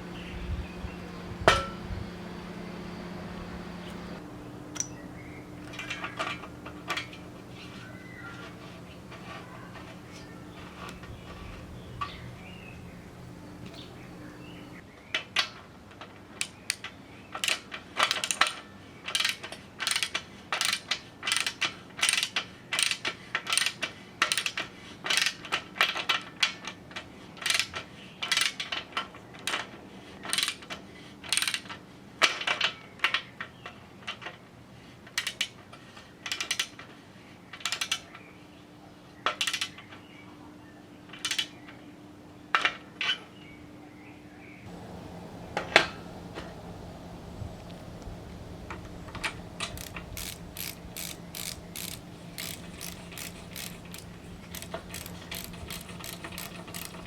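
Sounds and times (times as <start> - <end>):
ratcheting: 17.4 - 25.4, 30.3 - 30.6, 31.3 - 31.7, 49.1 - 57.0
sharp metallic clicks: 31.3 - 31.7, 49.1 - 57.0.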